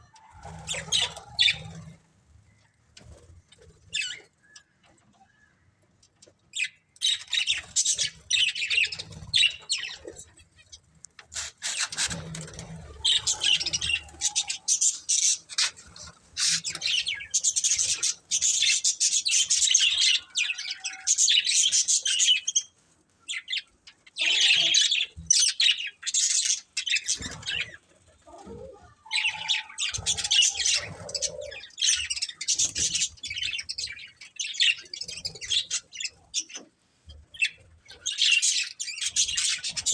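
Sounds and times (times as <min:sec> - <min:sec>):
budgerigars chattering and chirping: 0:00.5 - 0:01.9, 0:06.6 - 0:10.3, 0:11.4 - 0:22.6, 0:28.8 - 0:36.6, 0:37.3 - 0:39.9.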